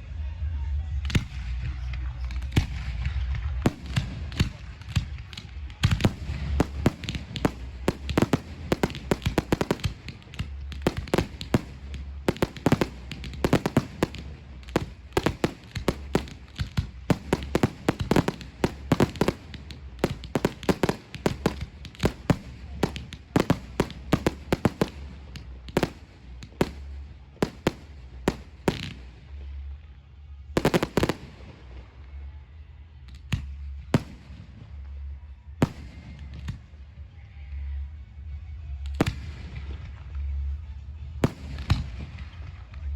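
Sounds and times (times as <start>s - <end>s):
fireworks bangs: 1.2s - 29.7s, 30.6s - 31.9s.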